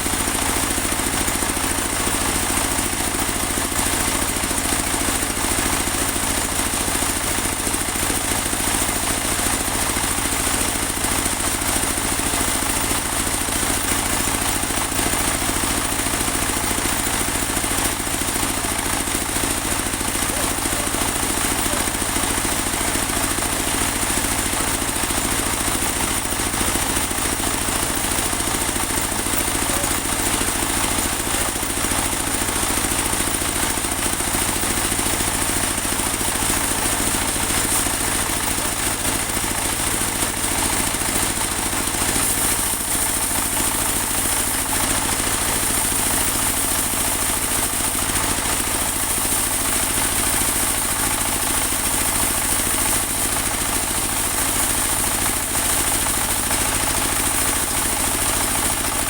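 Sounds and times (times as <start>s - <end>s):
sawmill engine droning: 0.0s - 59.0s.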